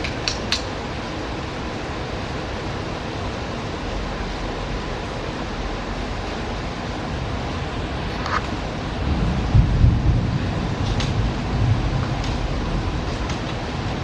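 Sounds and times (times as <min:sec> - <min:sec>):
rain hissing: 0:00.0 - 0:14.0
low rumble: 0:08.9 - 0:14.0.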